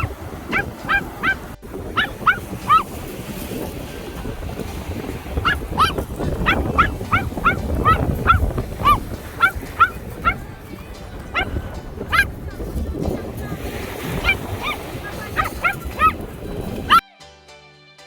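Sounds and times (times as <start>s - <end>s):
animal yelping: 0.0s - 3.4s, 4.7s - 12.4s, 14.0s - 16.3s.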